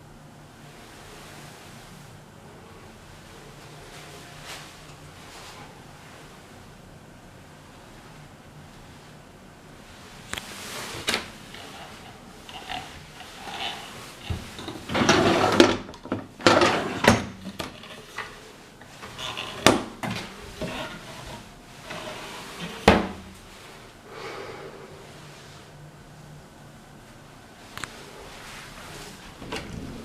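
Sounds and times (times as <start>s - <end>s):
cupboard doors and drawers clattering: 12.5s - 18.4s, 21.9s - 23.3s, 29.4s - 30.0s.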